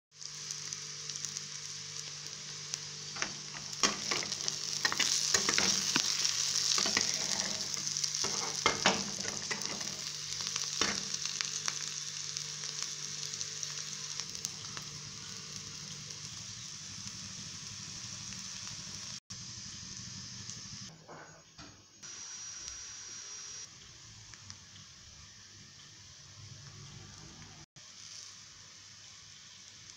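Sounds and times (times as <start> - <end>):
beans sizzling in a frying pan: 0.1 - 21.0, 22.0 - 29.9
steel spatula scraping a pan: 6.8 - 9.8.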